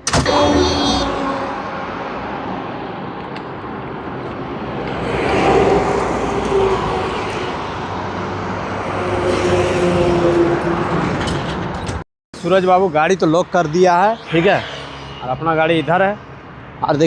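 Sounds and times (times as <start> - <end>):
road traffic hum: 0.0 - 17.0
vehicle passing by: 1.2 - 11.0, 13.6 - 17.0.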